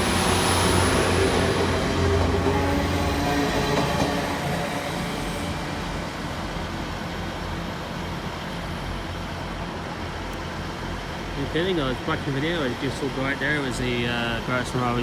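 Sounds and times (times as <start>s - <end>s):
train pulling away: 0.0s - 7.8s.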